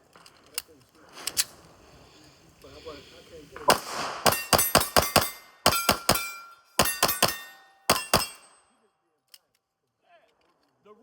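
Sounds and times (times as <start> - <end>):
pistol shots: 3.6 - 8.6
ringing after gunshots: 3.7 - 8.7.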